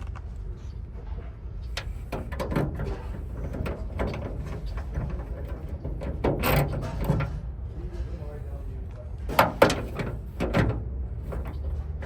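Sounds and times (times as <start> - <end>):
metal parts and tools clattering: 1.7 - 8.4, 9.3 - 12.0.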